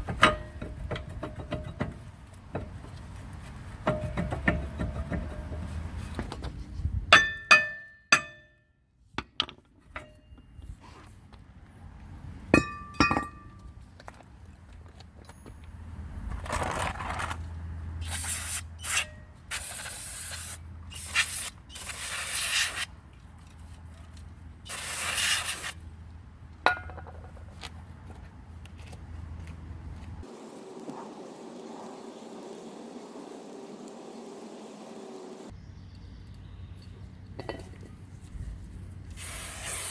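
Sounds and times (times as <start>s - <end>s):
metal brake parts clinking: 12.6s - 13.7s
hissing bursts: 24.7s - 25.8s, 39.1s - 39.9s.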